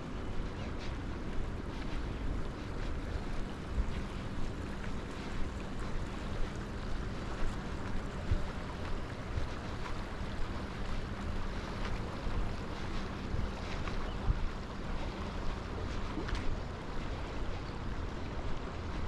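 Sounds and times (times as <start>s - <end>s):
faint steady hum: 0.0s - 19.0s
wind rumbling on microphone: 0.0s - 19.0s.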